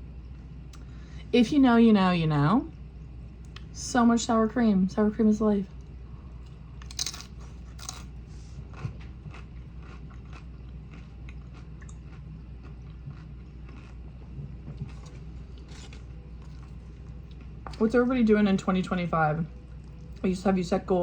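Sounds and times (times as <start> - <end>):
low hum: 0.0 - 21.0
person chewing and biting: 6.5 - 17.5.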